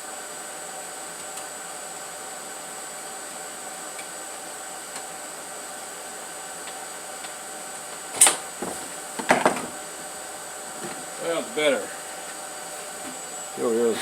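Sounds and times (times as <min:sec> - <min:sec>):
fan whirring with high whine: 0:00.0 - 0:14.0
loud clattering knocks: 0:08.2 - 0:09.8.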